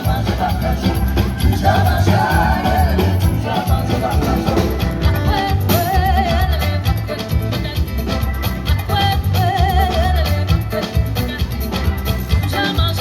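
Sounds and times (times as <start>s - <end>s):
steady bass beat: 0.0s - 8.0s.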